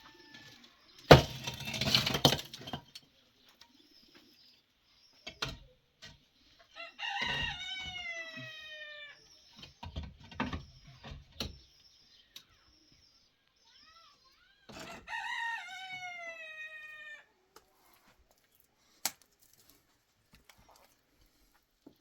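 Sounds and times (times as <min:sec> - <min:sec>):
rooster crowing: 0:00.0 - 0:00.7, 0:06.8 - 0:09.2, 0:14.9 - 0:17.3
small birds chirping: 0:02.6 - 0:19.0, 0:19.6 - 0:22.0.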